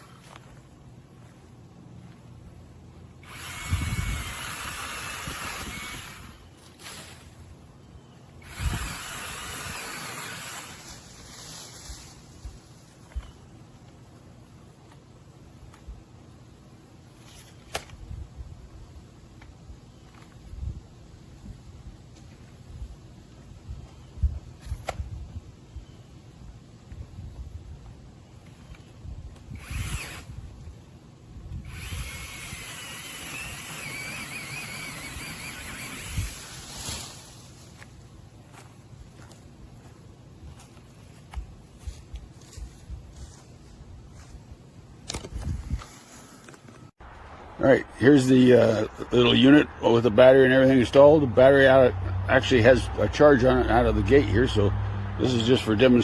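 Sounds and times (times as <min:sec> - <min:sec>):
cordless chainsaw running: 0:03.2 - 0:06.4, 0:08.4 - 0:11.0, 0:29.6 - 0:30.3, 0:31.7 - 0:36.5.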